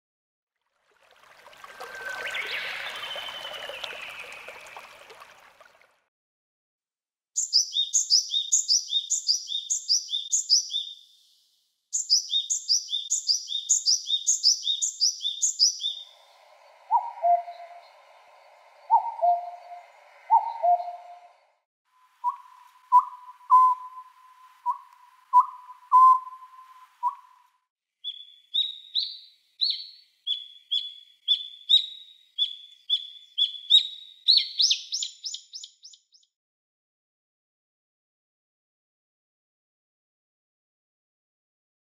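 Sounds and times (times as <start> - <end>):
wild birds singing: 1.7 - 5.2, 7.4 - 11.3, 12.0 - 21.5, 28.0 - 36.2.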